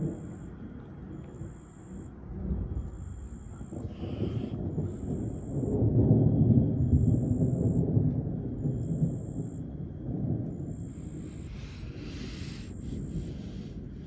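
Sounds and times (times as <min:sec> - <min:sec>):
rolling thunder: 0:02.5 - 0:14.0
faint high-pitched pulsing tone: 0:08.6 - 0:14.0.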